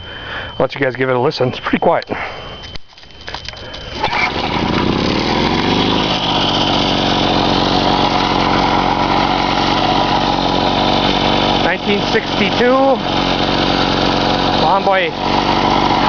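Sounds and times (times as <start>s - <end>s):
small two-stroke engine running: 3.4s - 16.0s.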